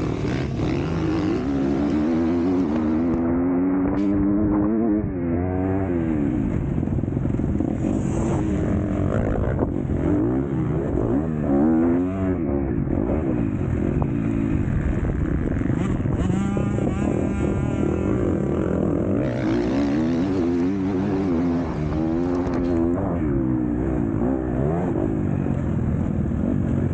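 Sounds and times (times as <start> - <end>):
motocross bike engine revving: 0.0 - 26.9.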